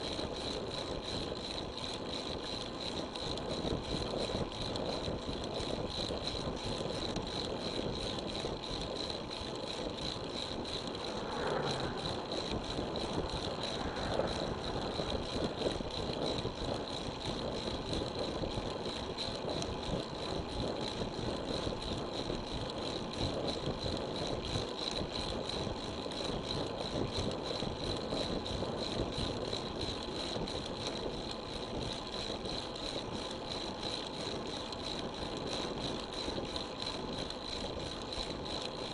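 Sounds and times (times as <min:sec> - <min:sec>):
wind noise on microphone: 0:03.0 - 0:32.5
road noise: 0:10.7 - 0:16.5.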